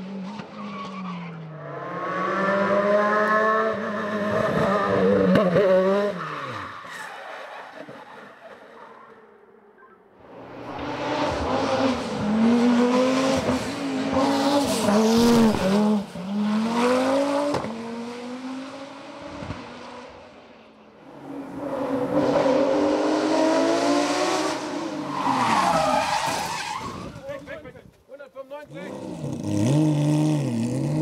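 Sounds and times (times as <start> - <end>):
race car engine revving: 28.9 - 31.0.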